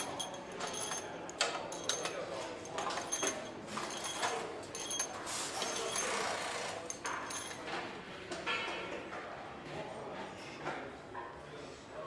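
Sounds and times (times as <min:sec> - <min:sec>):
metal clicks of parts and tools: 0:00.0 - 0:06.2, 0:06.8 - 0:07.8.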